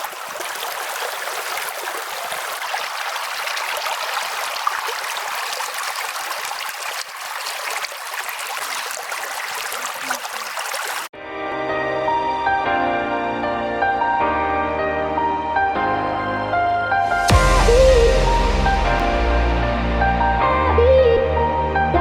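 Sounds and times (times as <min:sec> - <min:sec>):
stream water running: 0:00.0 - 0:11.1.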